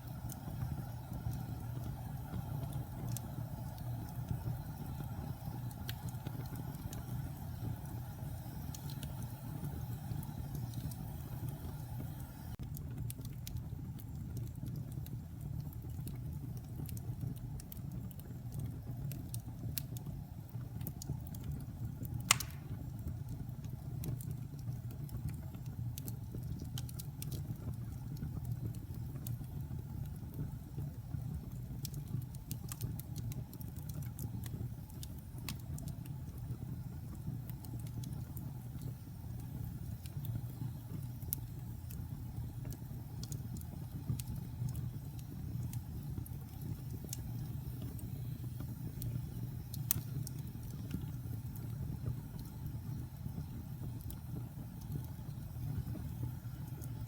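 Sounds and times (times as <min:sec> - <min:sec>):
low rumble of flames: 0:00.0 - 0:57.0
wood crackling: 0:22.2 - 0:23.0
loud pop from fire: 0:22.3 - 0:22.9.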